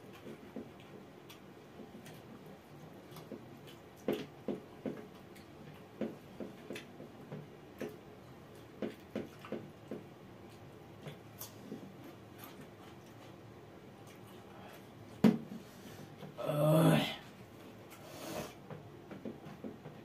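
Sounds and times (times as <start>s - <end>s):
chewing and mouth smacks: 0.0s - 7.0s, 7.7s - 13.4s.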